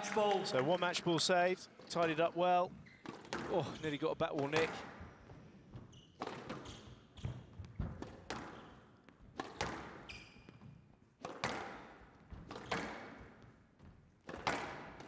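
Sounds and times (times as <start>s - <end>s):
shoe squeaking on court: 2.7s - 3.6s, 4.4s - 11.6s
squash ball cracking off rackets: 11.2s - 13.2s, 14.2s - 15.0s.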